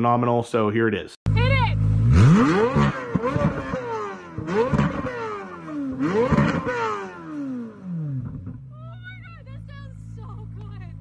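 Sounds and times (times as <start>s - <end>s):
car engine revving: 1.3s - 8.8s.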